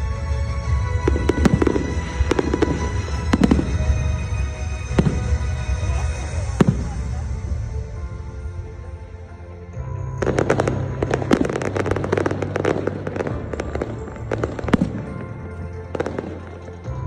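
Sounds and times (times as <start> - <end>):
fireworks crackling: 0.0 - 9.4, 10.0 - 17.0
music with held low notes: 0.0 - 17.0
loud firework crack: 4.8 - 7.2.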